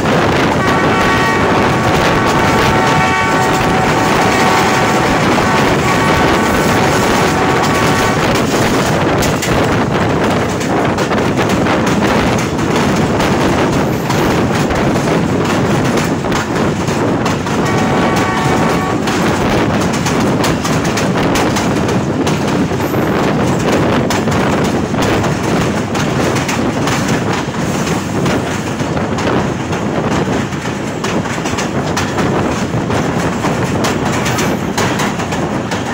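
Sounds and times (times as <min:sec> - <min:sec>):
diesel locomotive running: 0:00.0 - 0:35.9
wheels clacking over rail joints: 0:00.0 - 0:35.9
train horn: 0:00.5 - 0:08.7, 0:17.6 - 0:19.4.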